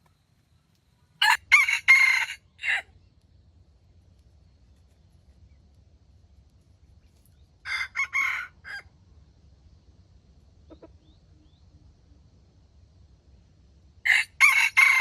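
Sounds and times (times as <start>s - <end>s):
faint clucks and chirps: 0.0s - 15.0s
rooster crowing: 1.2s - 2.9s, 7.6s - 8.9s, 14.1s - 15.0s.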